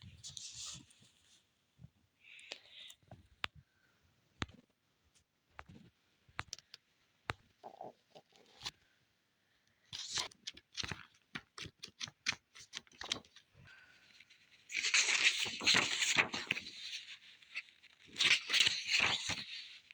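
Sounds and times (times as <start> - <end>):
light clicks and taps: 4.4 - 7.5.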